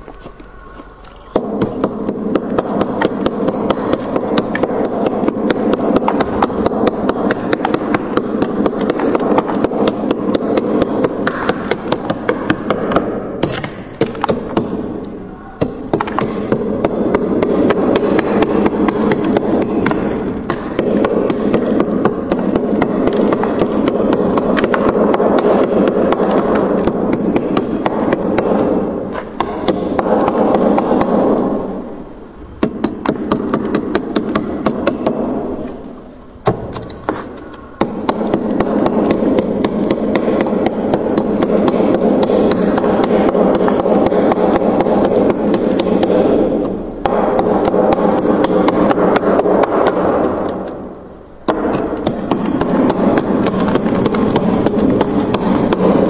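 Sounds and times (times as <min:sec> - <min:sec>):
sharp knocks on ice: 0:01.3 - 0:14.8, 0:15.6 - 0:31.6
tool scraping frost: 0:36.8 - 0:37.6.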